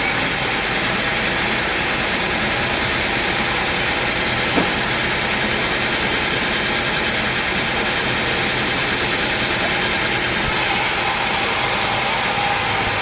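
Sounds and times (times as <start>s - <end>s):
sawmill machinery drone: 0.0s - 13.0s
short knock: 4.5s - 4.9s.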